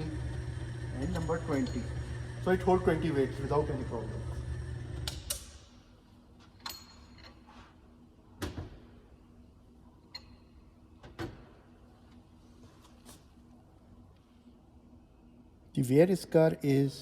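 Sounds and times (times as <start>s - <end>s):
test machine motor hum: 0.0s - 5.2s.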